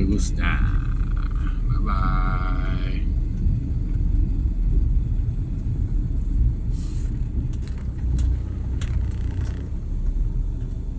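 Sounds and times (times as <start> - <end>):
car rumbling: 0.0 - 10.9.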